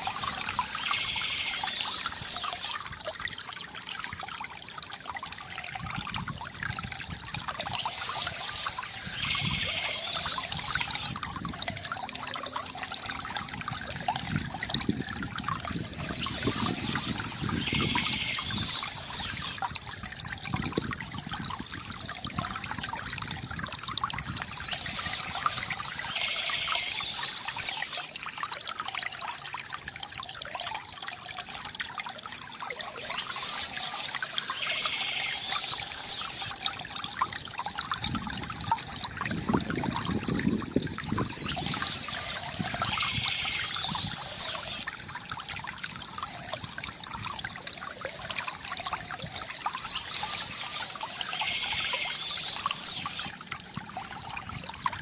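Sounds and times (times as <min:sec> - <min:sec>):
high bird chirping: 0:00.0 - 0:02.8, 0:07.5 - 0:11.2, 0:16.0 - 0:19.6, 0:24.4 - 0:28.1, 0:32.8 - 0:36.6, 0:41.2 - 0:44.8, 0:49.6 - 0:53.3
stream water trickling: 0:00.0 - 0:55.0.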